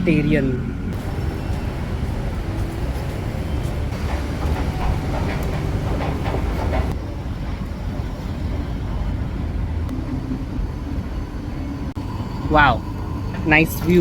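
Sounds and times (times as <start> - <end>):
low rumble of city vehicles: 0.0 - 14.0
rushing noise: 0.9 - 14.0.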